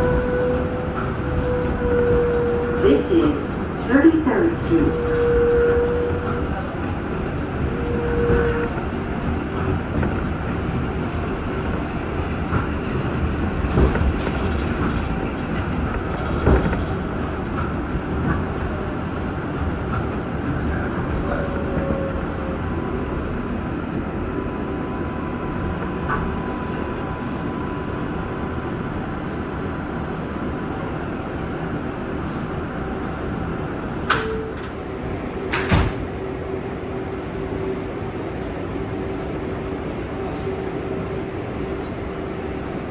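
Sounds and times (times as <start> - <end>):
subway train rumbling: 0.0 - 42.9
clicks from wheels and rails: 34.0 - 34.8, 35.5 - 36.1.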